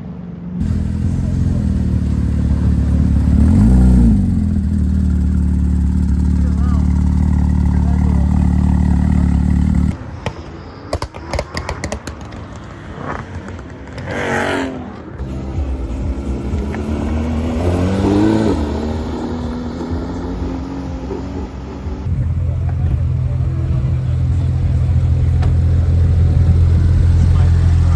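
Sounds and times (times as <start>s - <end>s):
engine note rising: 0.6s - 10.0s, 15.2s - 27.9s
loud low engine drone: 0.6s - 10.0s, 15.2s - 27.9s.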